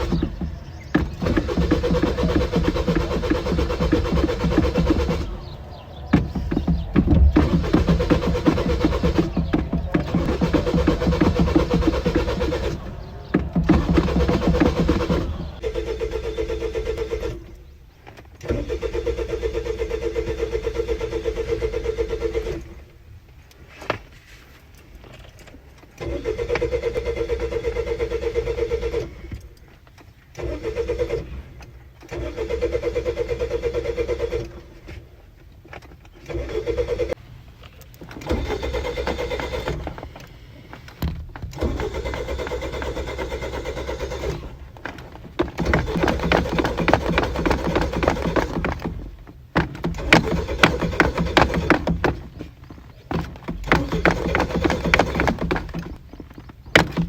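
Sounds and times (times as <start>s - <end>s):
car starter motor cranking: 0.0s - 23.8s, 25.8s - 57.0s.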